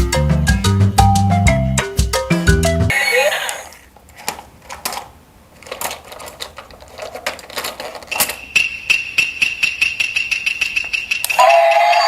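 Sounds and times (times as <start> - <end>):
plastic toy pieces clicking: 4.1 - 11.4
toy motor whining and ticking: 8.1 - 12.0.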